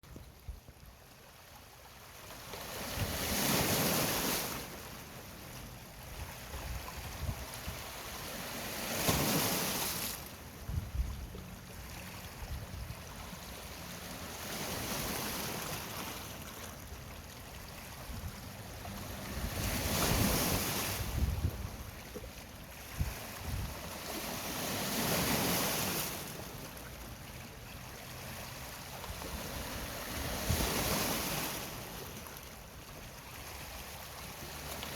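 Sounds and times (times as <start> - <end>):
sea waves breaking: 1.3 - 34.9
wind on microphone: 6.1 - 7.9, 10.6 - 11.4, 12.4 - 13.1, 19.2 - 22.0, 22.8 - 23.9, 29.1 - 31.4.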